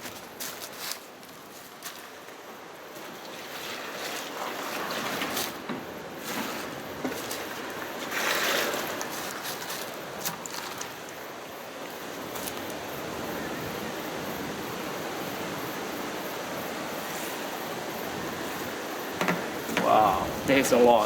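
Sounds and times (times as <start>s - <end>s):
water running through a sieve: 0.0s - 11.5s
light knocks: 19.2s - 19.9s.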